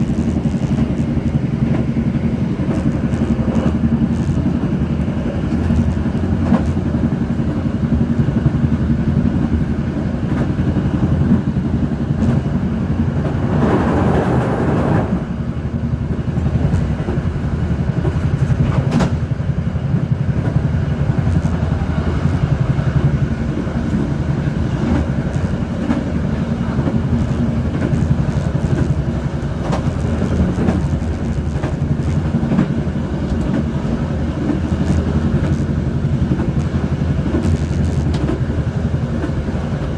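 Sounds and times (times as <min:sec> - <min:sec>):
rush of noise: 0:00.0 - 0:16.3
wind and road noise: 0:00.0 - 0:39.9.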